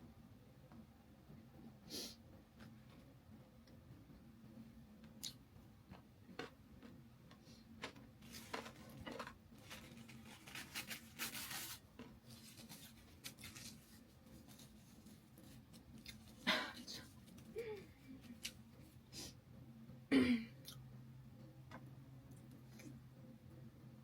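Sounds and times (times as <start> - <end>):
crunchy chewing: 5.2 - 16.4.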